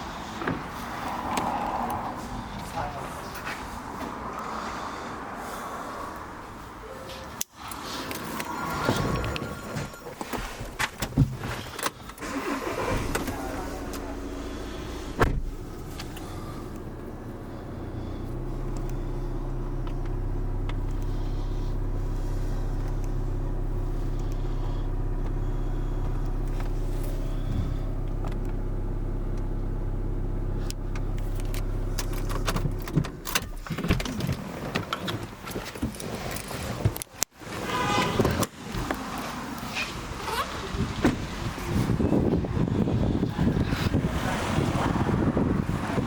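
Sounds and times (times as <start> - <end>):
car engine idling: 7.8 - 33.7, 37.7 - 46.0.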